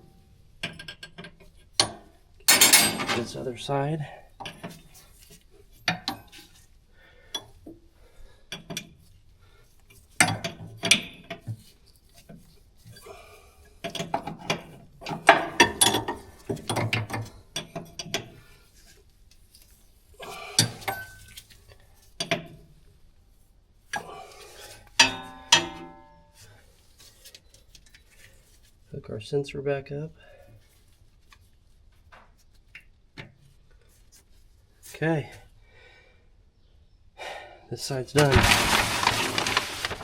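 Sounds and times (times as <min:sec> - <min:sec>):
metal fittings clinking: 0:02.5 - 0:03.5.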